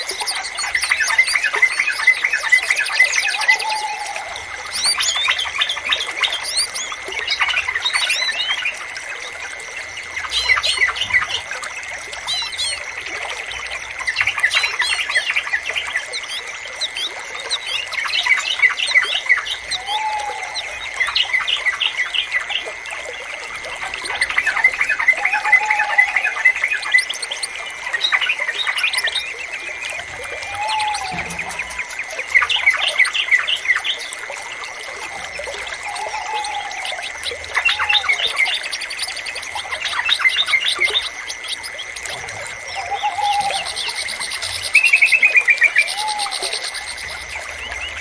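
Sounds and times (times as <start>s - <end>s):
songbirds chirping: 0.0s - 48.0s.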